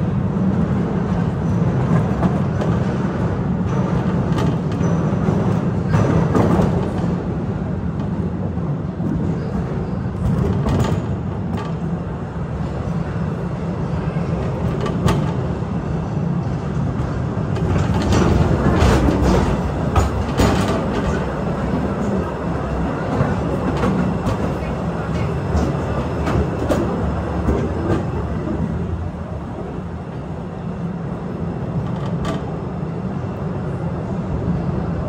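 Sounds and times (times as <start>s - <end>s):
train rumbling along track: 0.0s - 35.0s
wheels clicking on rails: 14.2s - 29.7s.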